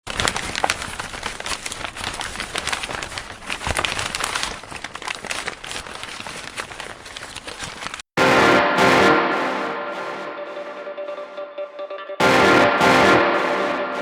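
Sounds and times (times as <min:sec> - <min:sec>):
paper crinkling and rustling: 0:00.0 - 0:08.1.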